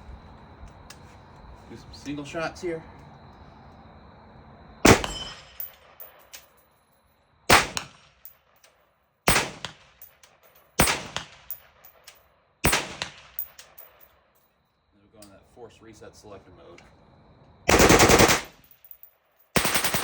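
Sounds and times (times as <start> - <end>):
rifle shots with echo: 4.8 - 6.0, 7.5 - 8.3, 9.3 - 10.0, 10.8 - 12.0, 12.6 - 13.8, 17.7 - 18.7, 19.6 - 20.0
small metallic clinks: 5.0 - 6.9, 8.2 - 8.8, 10.0 - 10.8, 11.4 - 12.3, 13.3 - 14.6, 18.6 - 19.6.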